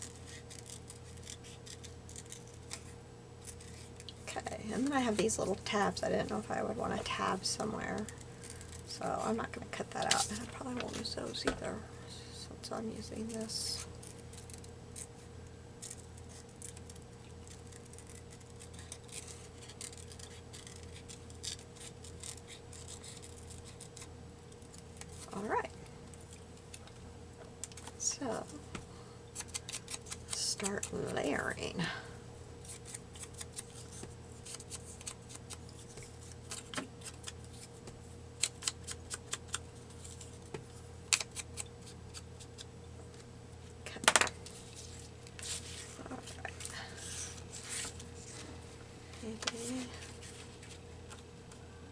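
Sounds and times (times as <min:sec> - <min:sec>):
faint electrical hum: 0:00.0 - 0:51.9
paper ticking and rustling: 0:15.8 - 0:25.4, 0:32.6 - 0:42.7.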